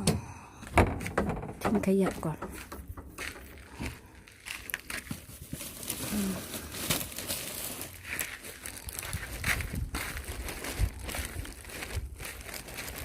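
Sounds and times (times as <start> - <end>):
plastic bag rustling: 3.3 - 13.0.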